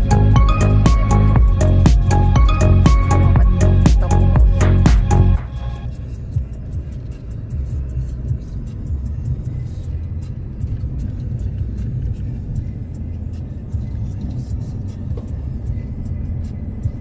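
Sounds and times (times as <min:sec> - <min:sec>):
background music: 0:00.0 - 0:07.0
vehicle rumbling: 0:00.0 - 0:17.0.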